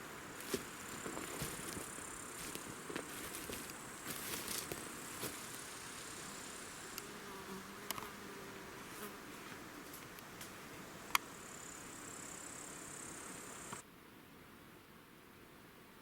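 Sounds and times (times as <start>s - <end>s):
high-pitched insect hiss: 0.0s - 8.1s, 11.1s - 13.8s
flying insect buzzing: 0.4s - 10.0s, 11.4s - 13.8s.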